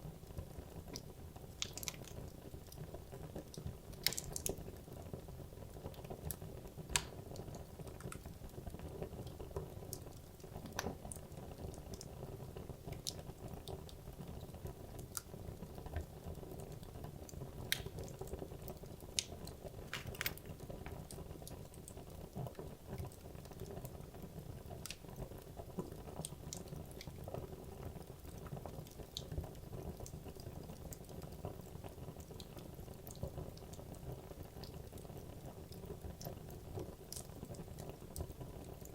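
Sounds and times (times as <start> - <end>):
burning wood crackling and popping: 0.8 - 12.1, 15.9 - 24.0.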